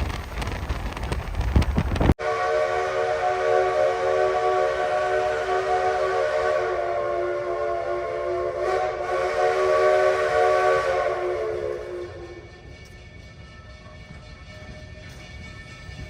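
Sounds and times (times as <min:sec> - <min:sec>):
steam locomotive whistle: 0:02.2 - 0:14.9.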